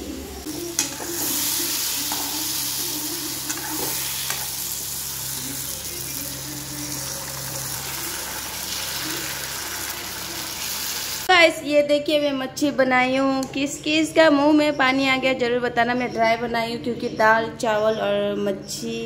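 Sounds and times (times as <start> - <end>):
fish sizzling in a wok: 0.4 - 11.3
metal spatula scraping a pan: 3.4 - 4.6.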